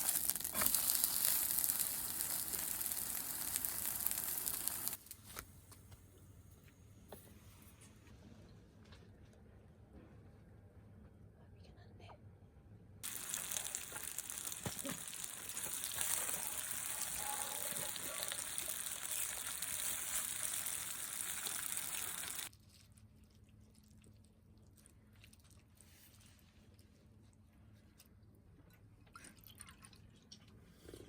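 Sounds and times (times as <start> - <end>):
water running from a tap: 0.0 - 5.0, 13.0 - 22.5.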